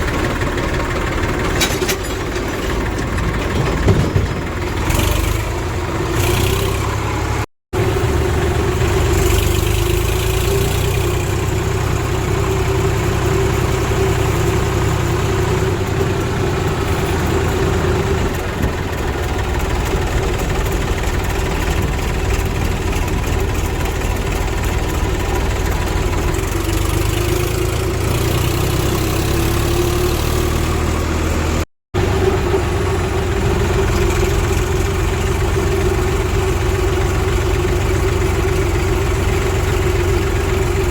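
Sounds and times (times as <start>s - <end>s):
heavy diesel engine rumbling: 0.0s - 40.9s.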